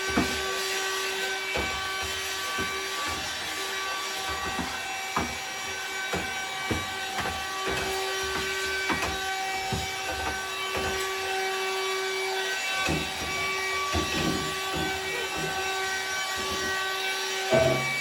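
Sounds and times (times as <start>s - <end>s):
steady hum of held tones: 17.5s - 18.0s.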